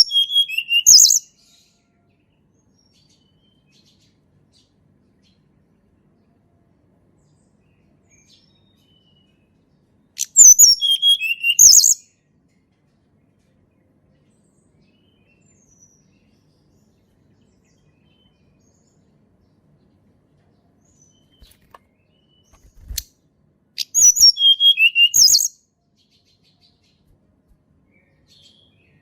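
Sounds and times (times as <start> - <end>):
songbird singing high notes: 0.0 - 1.2, 10.2 - 12.0, 23.8 - 25.6.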